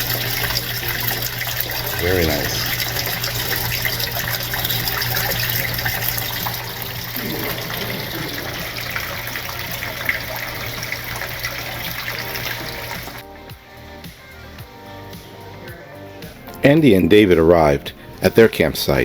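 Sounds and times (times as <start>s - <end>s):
water pouring into aquarium: 0.0s - 13.2s
low steady hum: 0.0s - 13.5s.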